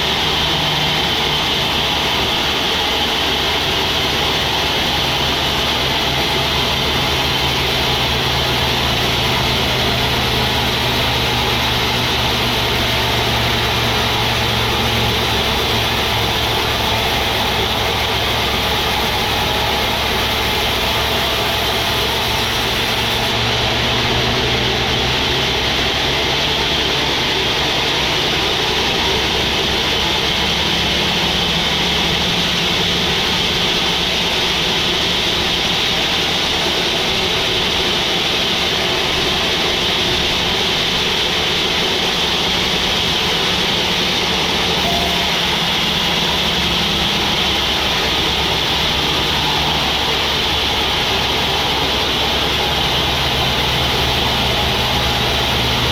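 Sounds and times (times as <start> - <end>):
low engine drone: 0.0 - 55.9.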